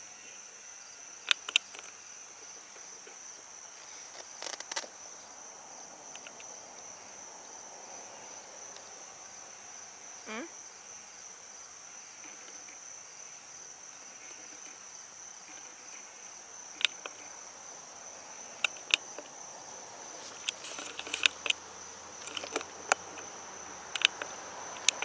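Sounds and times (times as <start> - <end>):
insect chorus trilling: 0.0 - 25.0
sharp clicks and ticks: 22.2 - 23.3, 23.9 - 25.0.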